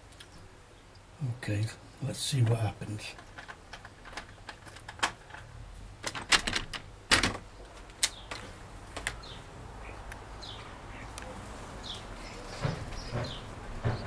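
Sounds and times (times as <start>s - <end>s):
door latch and handle clicks: 3.2s - 9.2s.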